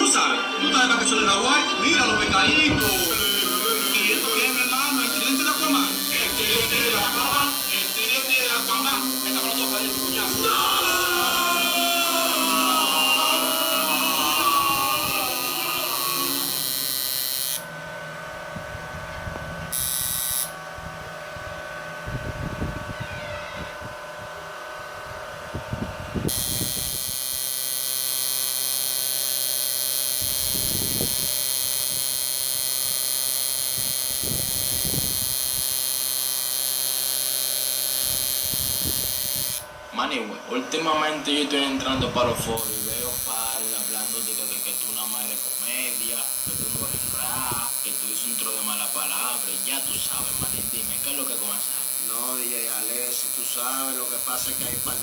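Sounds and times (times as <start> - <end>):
electrical hum: 0.0 - 55.0
high hiss: 2.8 - 17.7.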